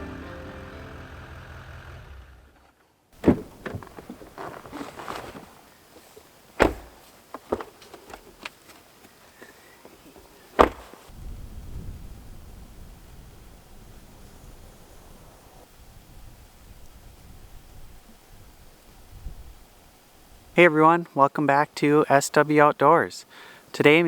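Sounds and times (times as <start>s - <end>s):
music: 0.0s - 1.6s
sharp knocks and thuds: 3.2s - 5.5s, 6.6s - 8.5s, 10.6s - 11.1s.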